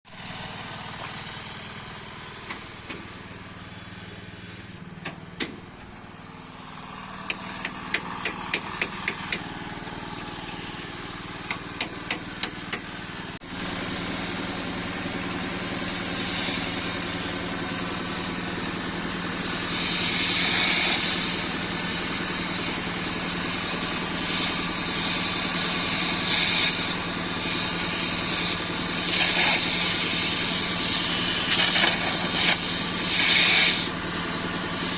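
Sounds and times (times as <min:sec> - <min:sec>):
machine engine running: 0:00.1 - 0:34.9
loud steady torch hiss: 0:13.4 - 0:34.9.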